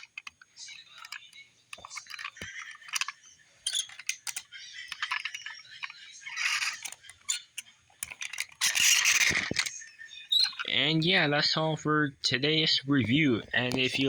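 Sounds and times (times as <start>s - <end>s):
toy cars clicking and rattling: 0.0s - 10.7s.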